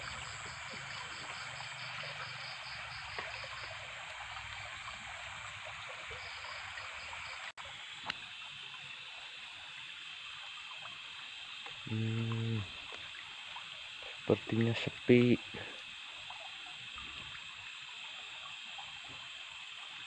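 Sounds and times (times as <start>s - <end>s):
insects chirping: 0.0s - 7.5s, 8.3s - 20.0s
stream trickling: 0.0s - 20.0s.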